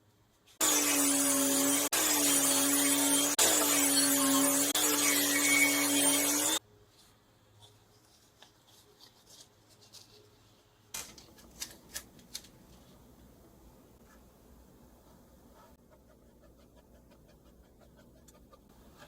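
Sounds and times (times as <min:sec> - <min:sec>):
power tool sanding wood: 0:00.6 - 0:06.6.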